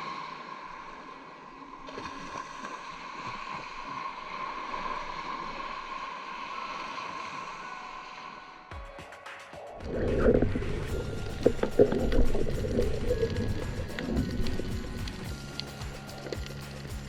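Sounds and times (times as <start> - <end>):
soft low knocks and gurgles: 9.8 - 17.0
underwater hiss with whine: 10.0 - 17.0.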